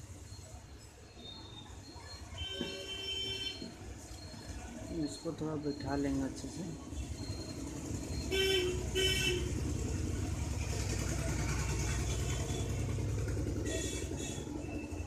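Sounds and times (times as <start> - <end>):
traffic engine rumble: 0.0 - 15.0
car horn toots: 8.3 - 9.6.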